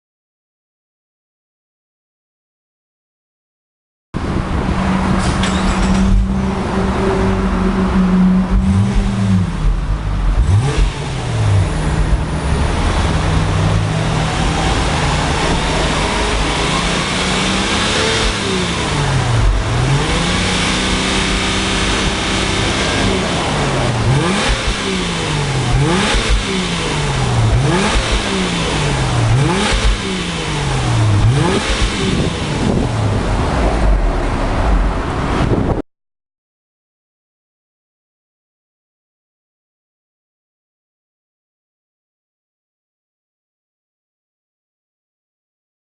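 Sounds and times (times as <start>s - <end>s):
car engine exhaust revving: 4.2s - 35.8s.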